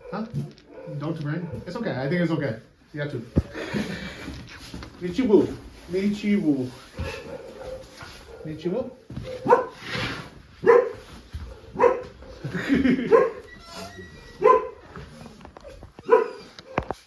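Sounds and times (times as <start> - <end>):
dog barking: 0.0 - 1.8, 7.0 - 10.0, 10.6 - 13.5, 14.3 - 15.0, 16.0 - 17.0.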